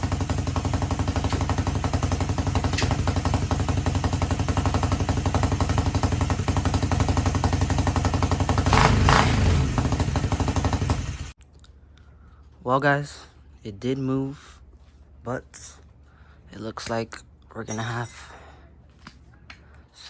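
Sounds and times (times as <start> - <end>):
go-kart engine running: 0.0 - 11.4.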